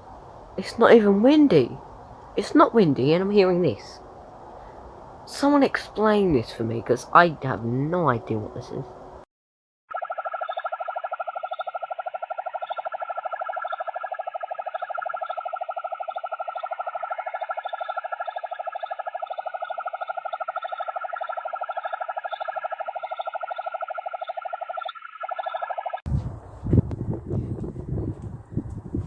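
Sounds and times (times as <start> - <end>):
wind rumble on microphone: 26.1 - 29.0.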